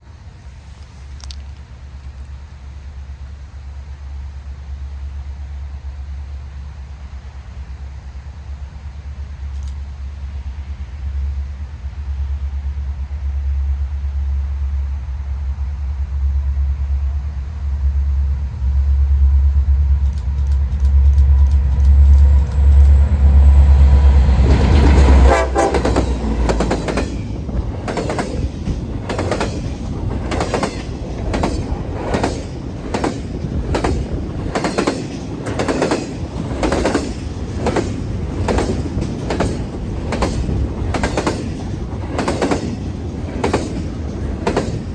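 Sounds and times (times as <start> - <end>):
train horn: 23.0 - 27.2.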